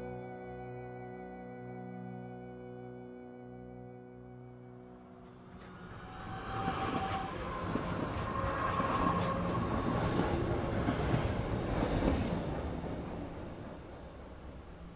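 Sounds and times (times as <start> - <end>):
train wheels rumbling on rails: 5.2 - 14.9.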